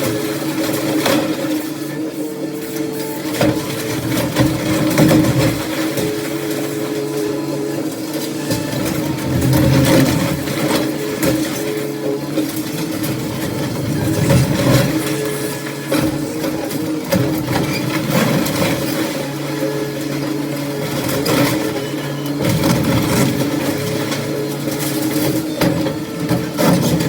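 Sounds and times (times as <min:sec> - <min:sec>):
diesel engine revving under load: 0:08.4 - 0:12.2.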